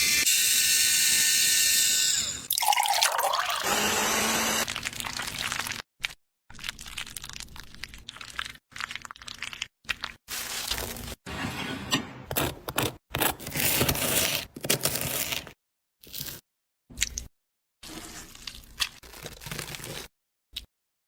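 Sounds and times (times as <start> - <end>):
food crunching and crackling: 4.6 - 11.2, 18.0 - 20.7.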